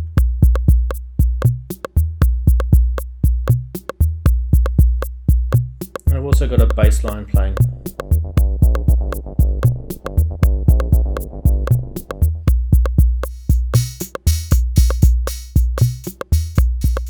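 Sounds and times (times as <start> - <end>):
drum machine beat: 0.0 - 17.0
hissy hi-hat: 0.0 - 17.0
synth bass line: 7.4 - 12.5.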